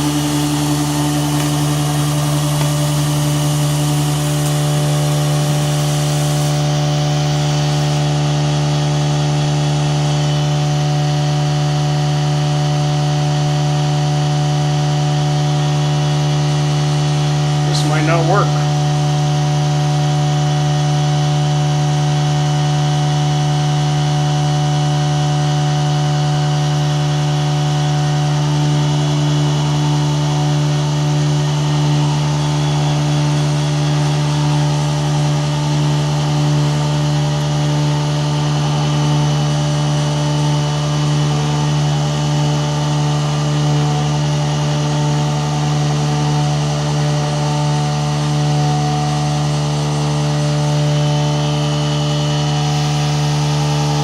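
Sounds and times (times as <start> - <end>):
mill spindle cutting metal: 0.0 - 12.4, 28.7 - 54.0.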